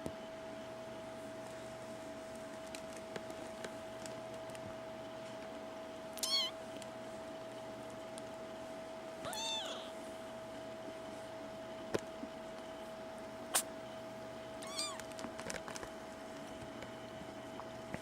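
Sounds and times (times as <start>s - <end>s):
faint steady hum: 0.0s - 18.0s
kitten meowing: 6.2s - 6.6s, 9.2s - 9.9s, 14.6s - 15.1s.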